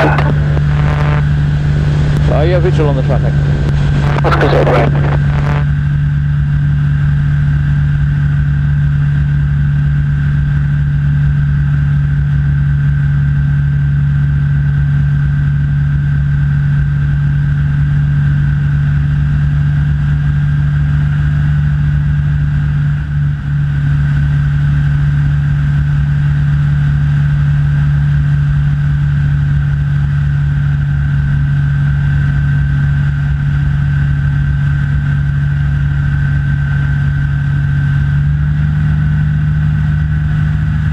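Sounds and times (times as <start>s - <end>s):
thin high whine: 0.0s - 5.8s
light aircraft engine drone: 0.0s - 40.9s.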